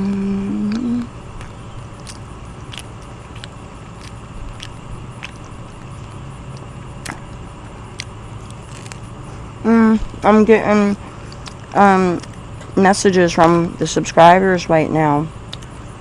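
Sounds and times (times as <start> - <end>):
person humming: 0.0 - 1.2
denture chewing clicks: 0.0 - 9.1, 15.5 - 15.8
steady low hum: 0.0 - 16.0.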